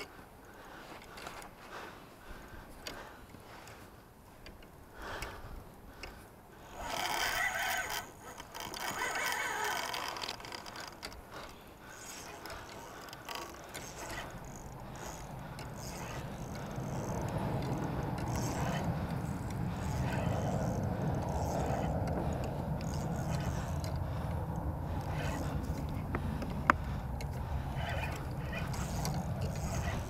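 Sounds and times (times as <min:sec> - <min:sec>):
fishing reel ratcheting: 0:06.0 - 0:30.0.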